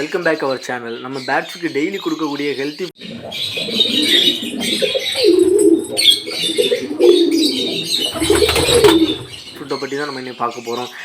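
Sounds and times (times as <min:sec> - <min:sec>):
small birds chirping: 0:00.0 - 0:11.0
doves cooing: 0:02.9 - 0:10.5.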